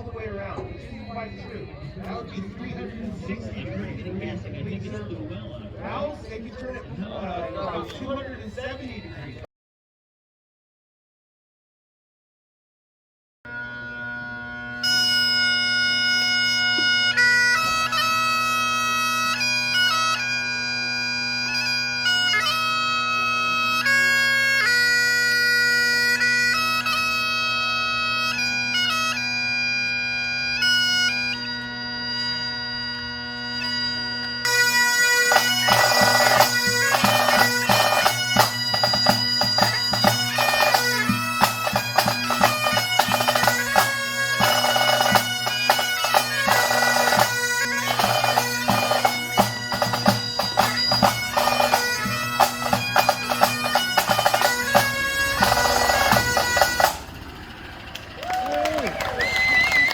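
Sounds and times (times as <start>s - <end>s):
bagpipes playing over drones: 13.5s - 59.9s
drums: 35.1s - 59.9s.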